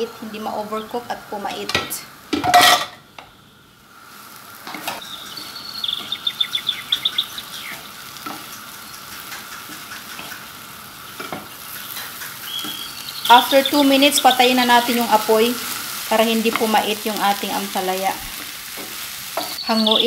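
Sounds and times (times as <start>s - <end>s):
food sizzling in a frying pan: 0.0s - 20.0s.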